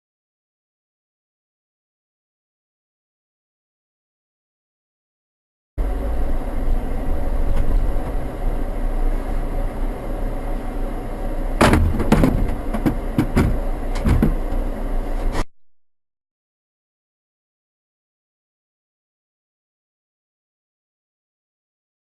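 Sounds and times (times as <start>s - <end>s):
car engine and road rumble: 5.8s - 15.5s
car crash impacts: 11.6s - 14.4s.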